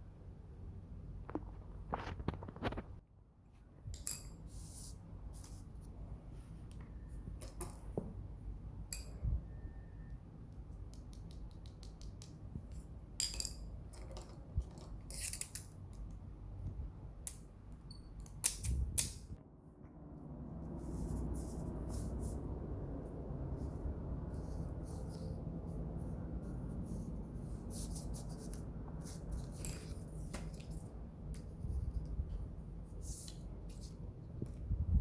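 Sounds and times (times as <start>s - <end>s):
faint low hum: 0.0s - 35.0s
crochet hook clicks and yarn rustles: 10.5s - 12.8s.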